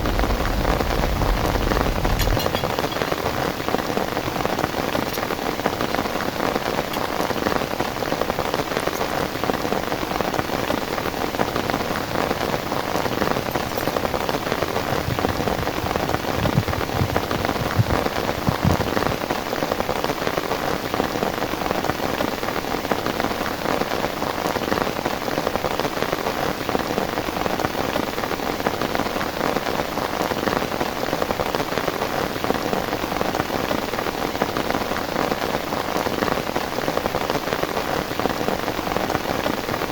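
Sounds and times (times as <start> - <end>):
dull low thumps: 0.0 - 2.9, 13.4 - 19.2
heavy rain on a surface: 0.0 - 39.9.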